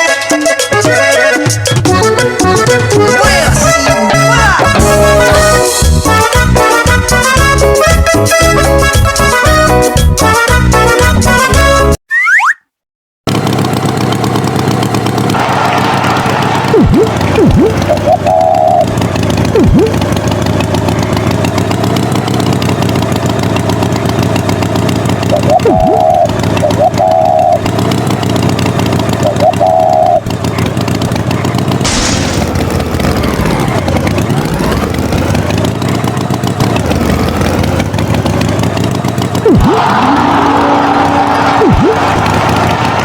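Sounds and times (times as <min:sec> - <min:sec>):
engine running steadily: 0:00.1 - 0:11.5, 0:13.3 - 0:43.0
short high-pitched toots: 0:25.3 - 0:27.6.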